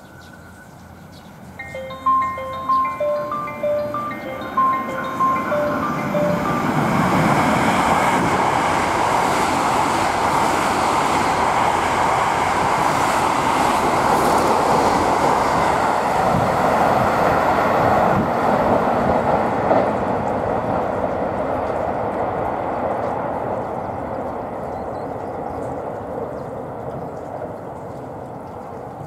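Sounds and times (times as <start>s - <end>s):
train rushing past: 1.6s - 24.6s.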